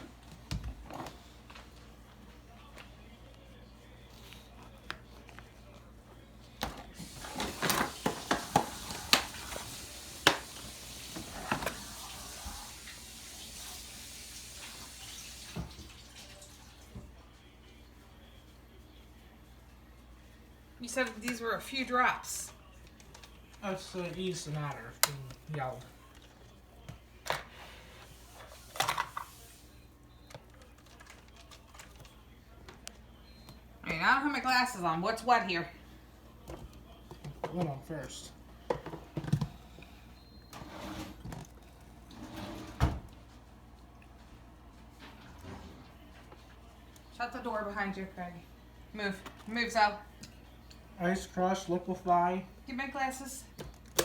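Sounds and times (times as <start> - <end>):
tap water running into sink: 7.0 - 16.8
dishes clinking and knocking: 38.7 - 39.6.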